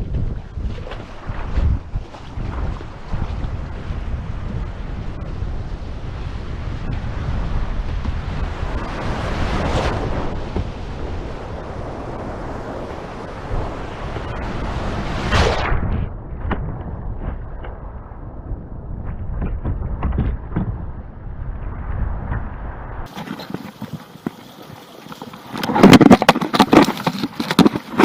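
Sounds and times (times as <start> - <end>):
wind buffeting microphone: 0.0 - 28.0
sea surf: 0.6 - 16.0, 23.0 - 28.0
wave breaking loudly: 7.1 - 18.5.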